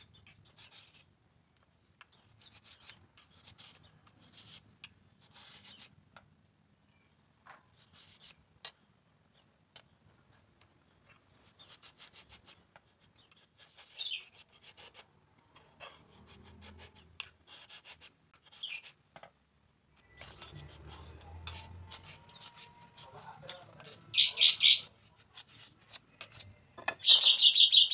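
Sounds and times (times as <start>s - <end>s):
bamboo scraping and clicking: 0.0s - 6.3s, 9.7s - 27.4s
downward-sliding bird chirps: 20.0s - 27.9s.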